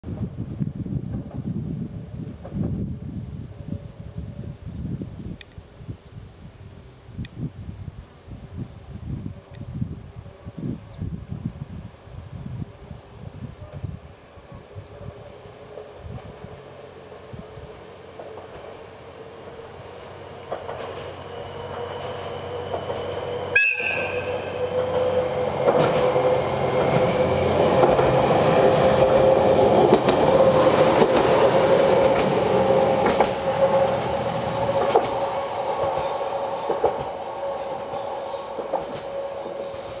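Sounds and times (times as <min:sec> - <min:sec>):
railcar engine droning: 0:08.8 - 0:40.0
wheels clicking over rail joints: 0:20.4 - 0:22.0, 0:28.9 - 0:40.0
railcar horn blast: 0:23.5 - 0:25.2.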